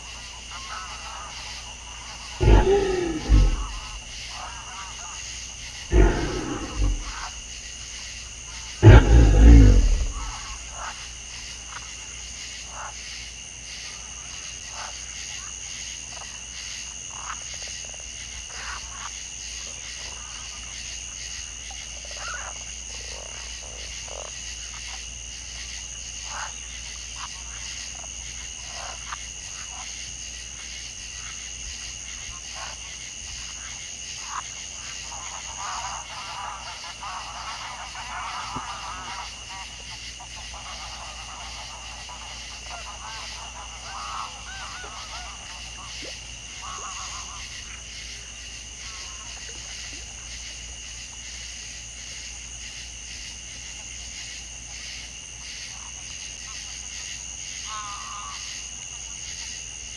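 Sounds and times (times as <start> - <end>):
animal roaring: 2.4 - 4.4, 5.7 - 7.6, 8.8 - 10.8.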